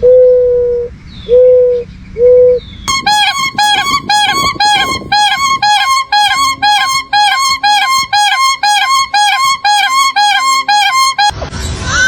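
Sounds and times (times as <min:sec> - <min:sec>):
bird calling in short notes: 0:02.9 - 0:11.3
wavering bird cry: 0:02.9 - 0:11.3.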